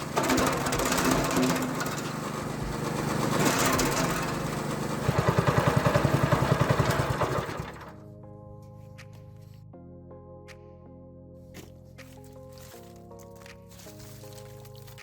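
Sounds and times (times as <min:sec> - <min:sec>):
petrol engine of wood chipper: 0:00.0 - 0:08.0.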